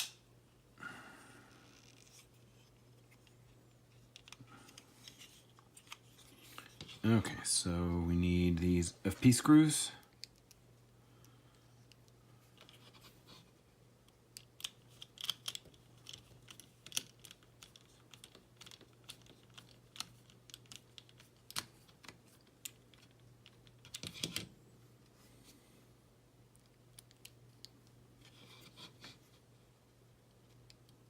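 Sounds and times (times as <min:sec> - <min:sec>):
clicks of small plastic parts: 0:14.0 - 0:24.5.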